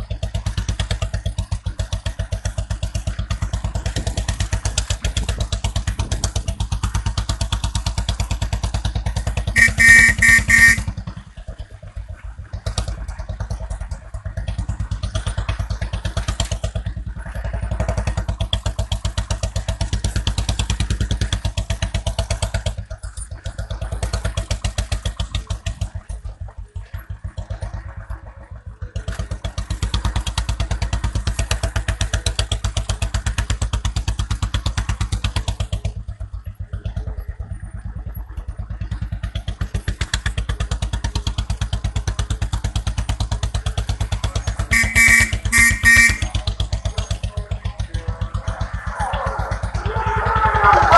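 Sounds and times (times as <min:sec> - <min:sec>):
motorcycle engine running: 0:00.0 - 0:50.9
short pitched beeps: 0:09.6 - 0:10.9, 0:44.8 - 0:46.3.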